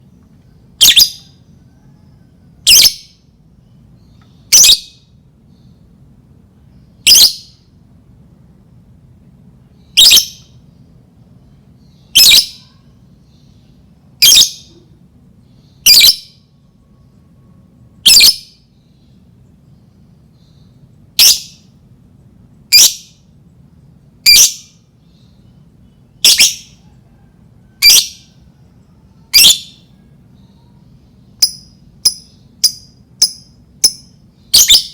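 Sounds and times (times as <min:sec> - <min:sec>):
faint low hum: 0:00.0 - 0:34.9
bird high-pitched calls: 0:00.8 - 0:03.2, 0:04.0 - 0:05.8, 0:07.0 - 0:07.7, 0:09.8 - 0:10.6, 0:11.5 - 0:19.2, 0:20.4 - 0:21.8, 0:22.7 - 0:23.3, 0:24.2 - 0:34.9.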